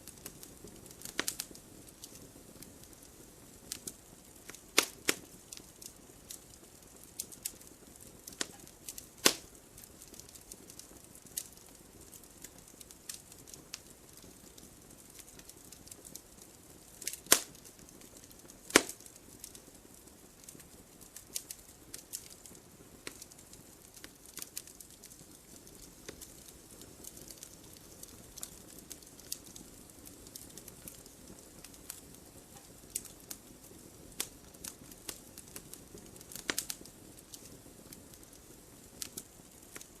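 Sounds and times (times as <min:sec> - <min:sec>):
campfire crackling: 0:00.0 - 0:40.0
fire hiss: 0:00.0 - 0:40.0
loud wood snaps: 0:04.8 - 0:05.2, 0:09.2 - 0:09.4, 0:17.2 - 0:17.5, 0:18.7 - 0:19.1.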